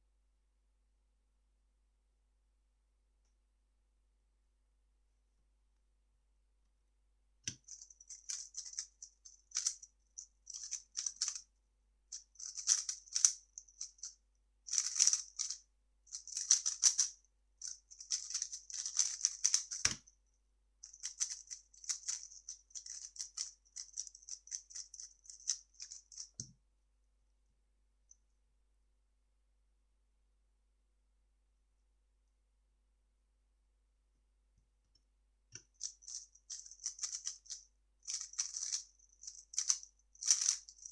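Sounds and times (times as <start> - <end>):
plastic puzzle cube clicking: 12.4 - 13.4, 14.7 - 15.6, 16.3 - 17.1, 18.0 - 20.0, 21.0 - 26.0, 36.1 - 38.8, 39.5 - 40.9.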